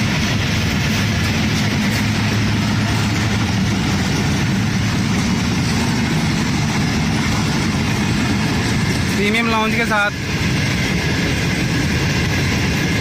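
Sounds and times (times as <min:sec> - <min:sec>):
locomotive engine idling: 0:00.0 - 0:13.0.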